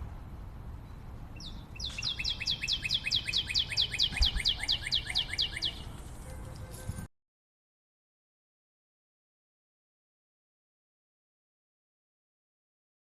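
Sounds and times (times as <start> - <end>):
songbird trilling: 1.4 - 6.0.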